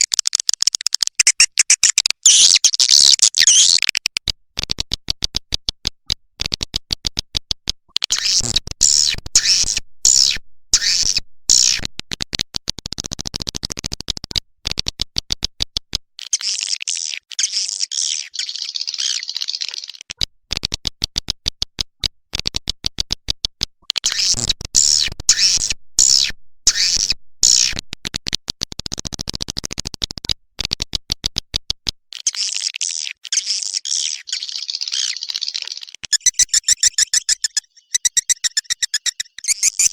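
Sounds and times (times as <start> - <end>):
rapid dry clicks: 0.0 - 2.4, 34.9 - 39.9
high dense twittering chirps: 33.6 - 39.9.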